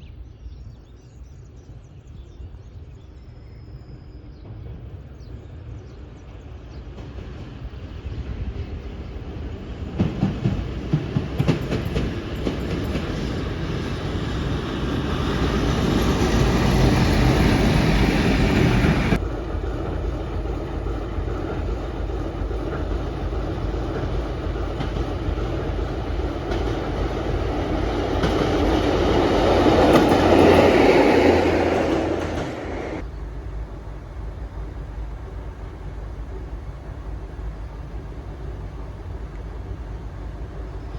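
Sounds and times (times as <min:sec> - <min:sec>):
train passing: 0:01.7 - 0:40.9
wheels clicking over rail joints: 0:09.9 - 0:17.6, 0:19.8 - 0:33.1.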